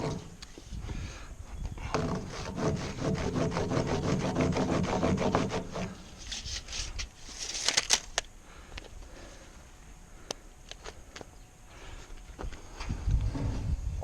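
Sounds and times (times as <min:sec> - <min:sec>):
handsaw cutting wood: 0:02.0 - 0:06.0.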